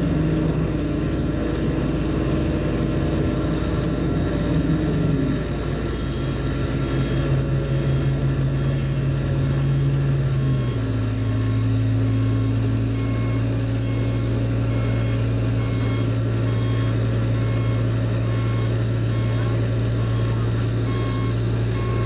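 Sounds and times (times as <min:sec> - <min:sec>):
machinery low drone: 0:00.0 - 0:22.0
electronic warning beeps: 0:05.7 - 0:22.0.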